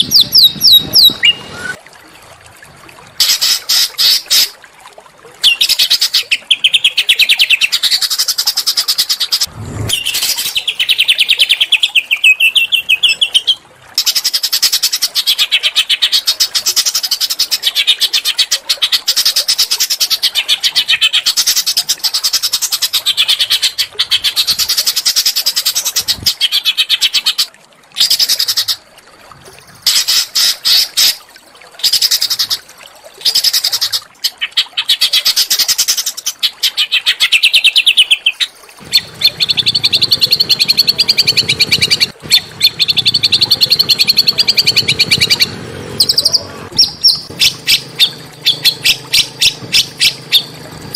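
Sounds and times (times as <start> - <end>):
songbirds trilling: 36.9 - 50.9.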